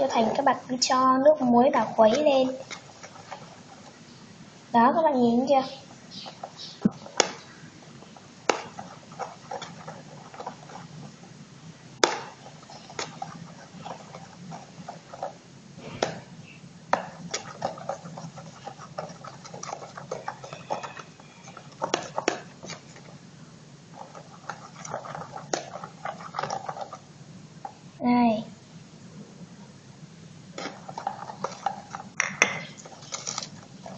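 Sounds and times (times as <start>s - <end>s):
low steady hum: 0.0s - 33.9s.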